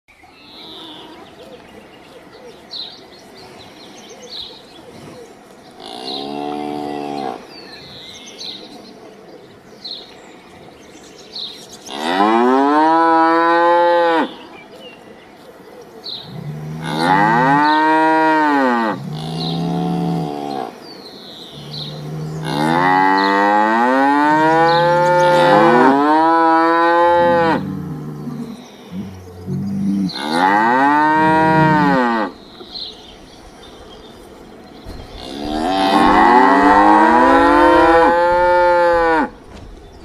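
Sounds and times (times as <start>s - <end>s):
cows mooing: 5.8s - 7.5s, 11.9s - 14.4s, 16.3s - 20.8s, 21.5s - 32.4s, 34.9s - 39.4s.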